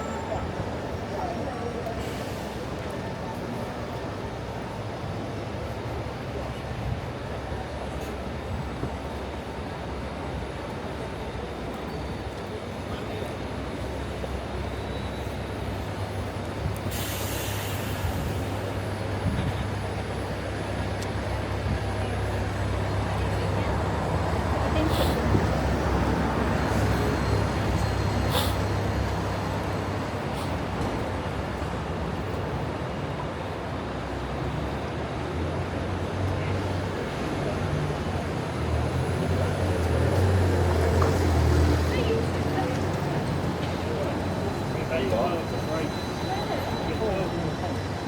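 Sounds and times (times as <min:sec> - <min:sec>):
city traffic rumble: 0:00.0 - 0:48.0
brief hiss: 0:16.9 - 0:18.3.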